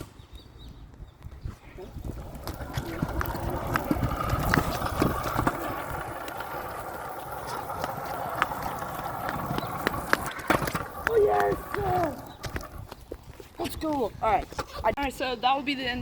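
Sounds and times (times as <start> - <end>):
scooter deck clacking over bumps: 1.8 - 13.2.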